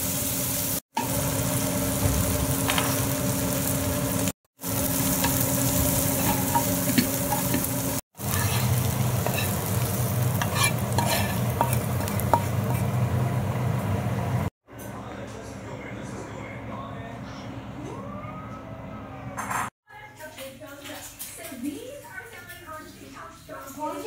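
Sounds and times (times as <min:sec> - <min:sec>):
onions sizzling in a frying pan: 0:00.0 - 0:14.5
metal spatula scraping a pan: 0:05.0 - 0:13.0.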